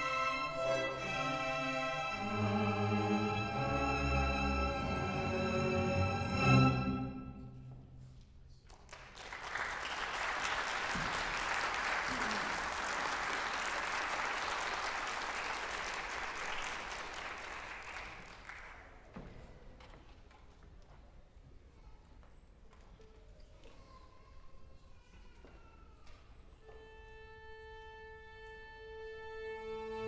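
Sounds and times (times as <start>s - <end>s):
string orchestra chord ringing: 0.0s - 7.5s
audience applause: 8.9s - 19.0s.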